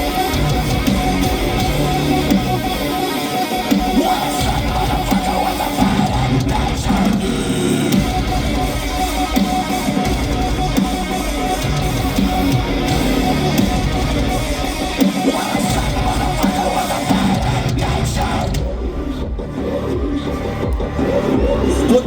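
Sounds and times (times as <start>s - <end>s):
live heavy metal music: 0.0s - 22.0s.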